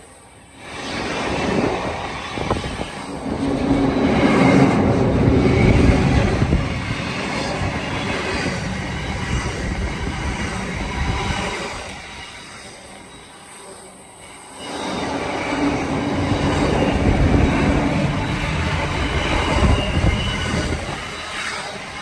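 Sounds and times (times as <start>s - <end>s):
train passing: 0.0s - 22.0s
wheels clattering over rails: 15.6s - 21.5s.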